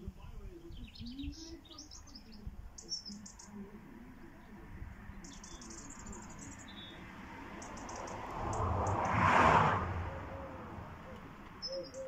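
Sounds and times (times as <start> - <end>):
small songbird chirping: 0.1 - 9.1, 10.0 - 12.0.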